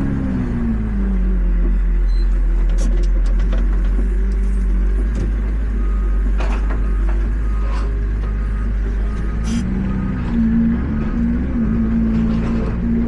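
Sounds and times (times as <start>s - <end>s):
tractor diesel engine rumbling: 0.0s - 13.0s.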